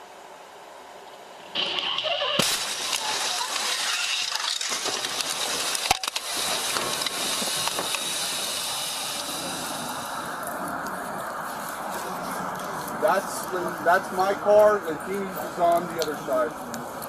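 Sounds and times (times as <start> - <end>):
dense steady hiss: 0.0 - 17.0
crunching and crackling: 1.6 - 8.6.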